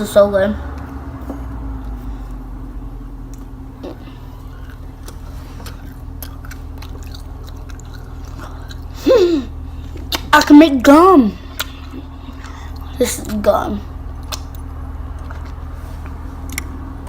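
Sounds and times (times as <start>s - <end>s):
person chewing slime: 3.2s - 10.5s, 11.4s - 17.0s
wet mouth clicks and squishes: 4.6s - 9.0s, 11.5s - 13.4s, 14.1s - 16.8s.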